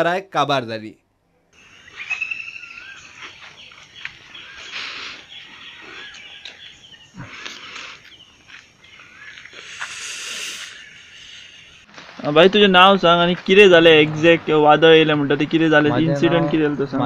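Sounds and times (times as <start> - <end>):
birds chirping and whistling: 1.6 - 11.9
rustling noise: 11.8 - 14.4.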